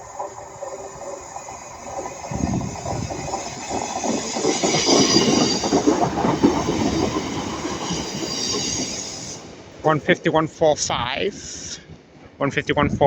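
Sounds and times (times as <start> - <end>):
train wheels clattering over rail joints: 0.0 - 10.2
high wheel squeal: 2.3 - 9.6.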